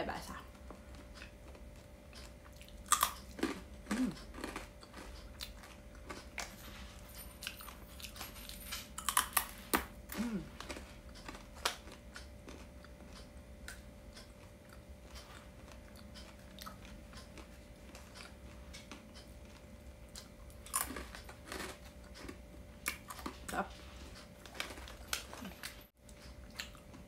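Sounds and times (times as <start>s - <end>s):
crunching crisp chips: 2.6s - 6.7s, 7.4s - 12.7s, 20.2s - 23.4s, 24.0s - 25.8s.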